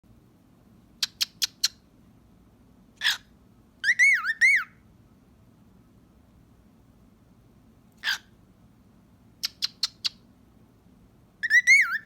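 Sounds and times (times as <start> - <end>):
cockatiel warbling whistle: 3.8 - 4.8, 11.4 - 12.0
cockatiel harsh rasp: 8.0 - 8.3.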